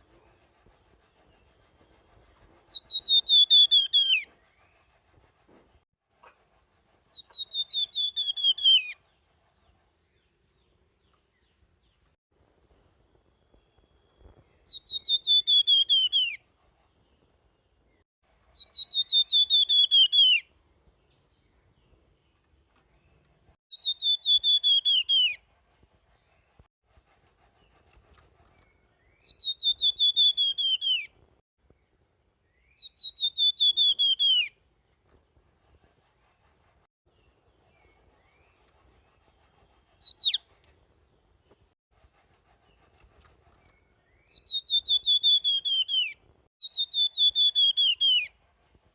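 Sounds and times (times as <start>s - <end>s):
bird singing high whistled notes: 2.7s - 4.8s, 7.1s - 9.2s, 13.6s - 16.4s, 18.5s - 21.6s, 23.7s - 25.4s, 28.6s - 31.1s, 32.4s - 34.6s, 40.0s - 40.5s, 43.7s - 48.4s.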